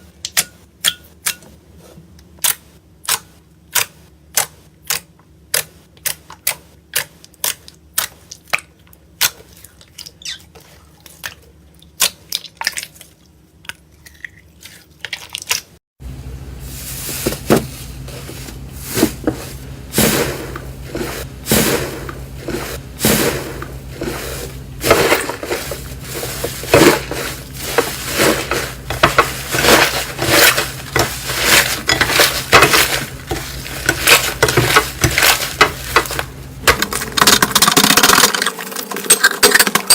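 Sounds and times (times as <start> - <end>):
steady low hum: 16.0 - 37.6.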